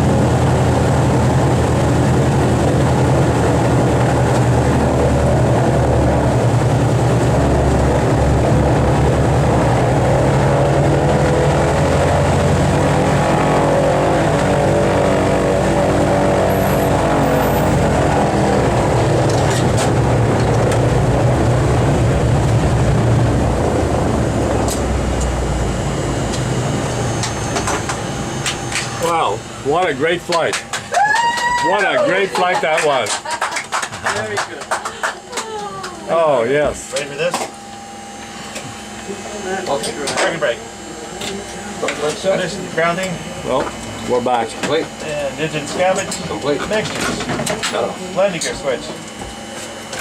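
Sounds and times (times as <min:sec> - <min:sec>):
radial aircraft engines running: 0:00.0 - 0:50.0.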